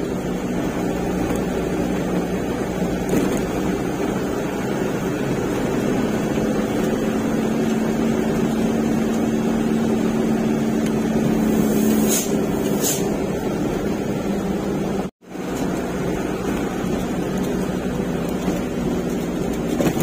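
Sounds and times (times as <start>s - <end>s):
truck diesel engine running: 0.0s - 20.0s
brief hiss: 11.6s - 13.1s.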